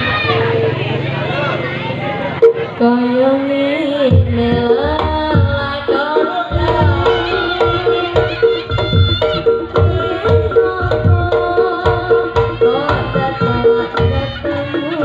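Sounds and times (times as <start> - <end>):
hand drums: 4.1 - 15.0
gamelan music: 5.9 - 15.0.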